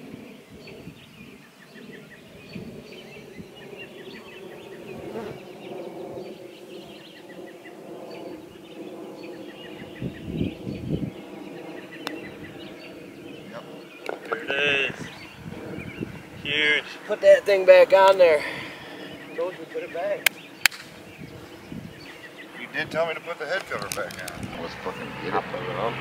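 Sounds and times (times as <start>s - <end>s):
birds chirping: 0.0s - 26.0s
sharp click: 20.2s - 20.9s.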